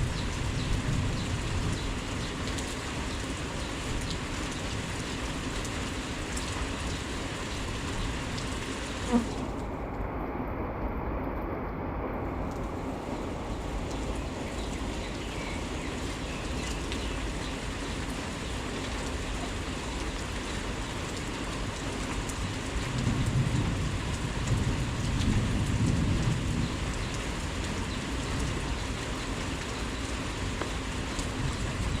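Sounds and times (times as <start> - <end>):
heavy rain falling: 0.0 - 32.0
low rumble: 9.4 - 15.1.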